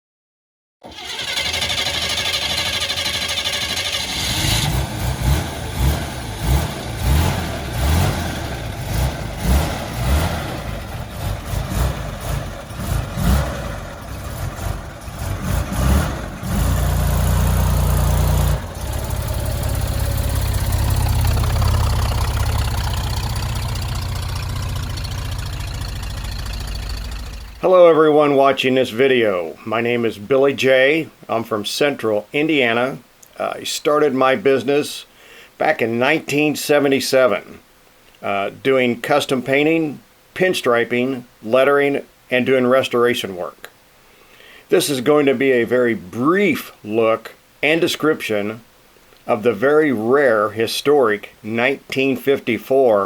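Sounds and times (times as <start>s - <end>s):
car engine starting and revving: 0.8s - 27.6s.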